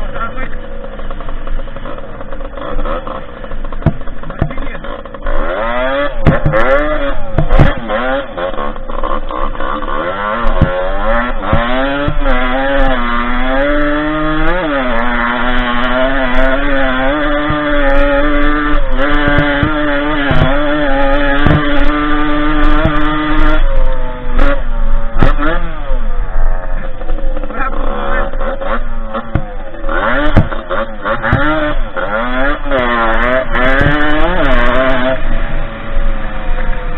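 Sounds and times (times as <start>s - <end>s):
dirt bike engine revving: 0.0s - 36.9s
sharp knocks: 1.1s - 8.8s, 10.4s - 12.7s, 15.7s - 23.6s, 24.4s - 25.7s, 28.4s - 35.2s.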